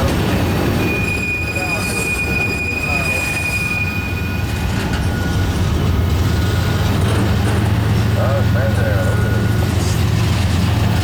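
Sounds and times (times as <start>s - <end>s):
freight cars rumbling: 0.0s - 11.0s
high-pitched wheel squeal: 0.7s - 5.7s.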